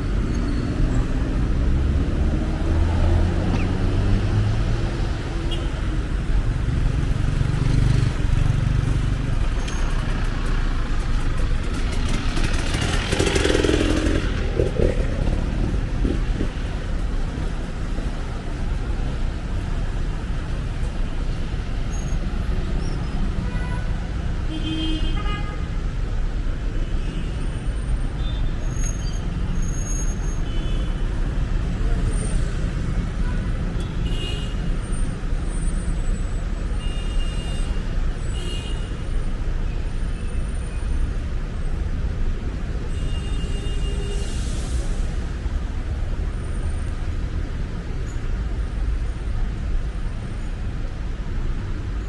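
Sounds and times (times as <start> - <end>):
cars and motorcycles passing: 0.0 - 24.5
loud vehicle passing: 1.0 - 4.8, 11.6 - 16.6.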